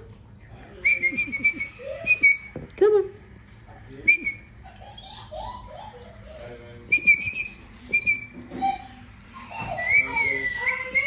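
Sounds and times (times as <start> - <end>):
baby bird chirping: 0.0 - 2.7, 3.8 - 11.0
whistled notes: 6.5 - 11.0.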